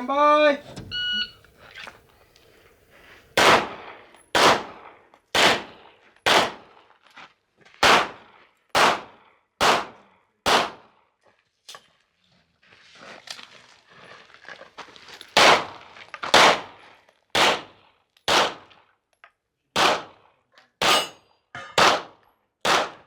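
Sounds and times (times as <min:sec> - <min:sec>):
pistol shots: 0:03.4 - 0:06.8, 0:07.8 - 0:10.9, 0:16.4 - 0:16.7, 0:17.4 - 0:17.7, 0:18.3 - 0:18.7, 0:19.8 - 0:20.2, 0:20.8 - 0:21.2, 0:21.8 - 0:23.0.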